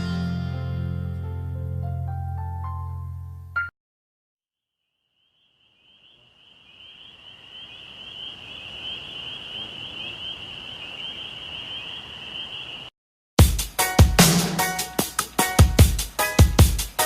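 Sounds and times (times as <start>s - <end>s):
trilling chorus of animals: 5.2s - 12.9s
loud music with drum hits: 13.4s - 17.0s.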